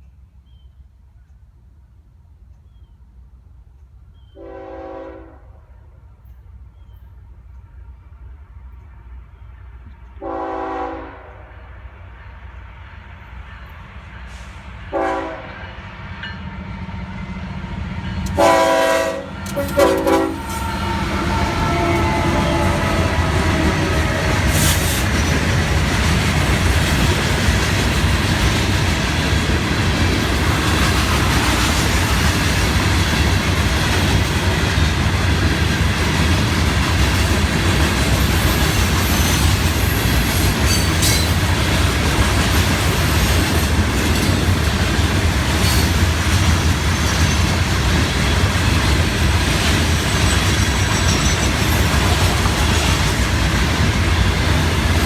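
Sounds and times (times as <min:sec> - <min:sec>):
freight train wheels rumbling: 0:02.0 - 0:55.0
high-pitched wheel squeals: 0:19.6 - 0:25.0, 0:40.6 - 0:41.4, 0:50.0 - 0:51.9.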